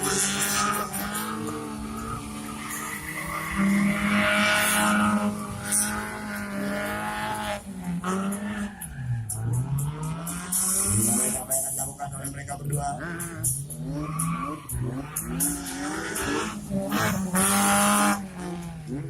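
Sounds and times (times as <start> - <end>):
tyres squealing on pavement: 0.0 - 17.4
engine at high revs: 0.0 - 19.0.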